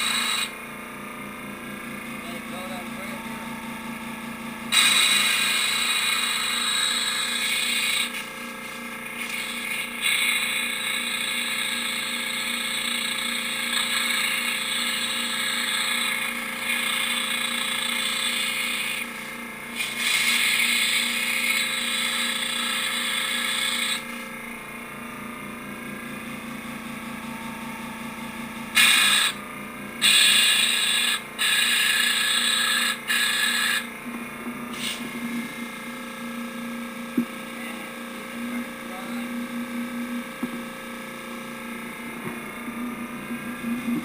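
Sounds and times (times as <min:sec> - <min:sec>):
air compressor humming: 0:00.0 - 0:44.0
compressed air hissing: 0:04.7 - 0:24.2, 0:28.8 - 0:29.4, 0:30.0 - 0:33.9, 0:34.7 - 0:35.1.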